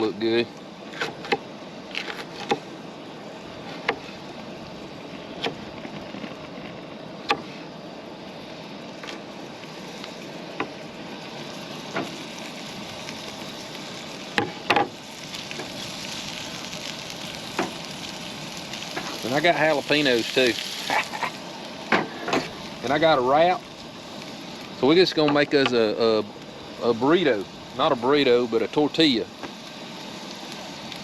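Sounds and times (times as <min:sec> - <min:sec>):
food sizzling in a pan: 0:08.1 - 0:31.0.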